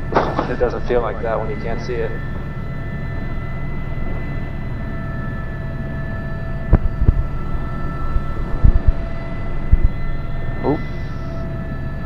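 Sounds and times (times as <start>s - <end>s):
helicopter rotor thrum: 0.0s - 12.0s
turbine whine: 0.0s - 12.0s
short low thumps: 6.7s - 7.4s, 8.4s - 10.0s.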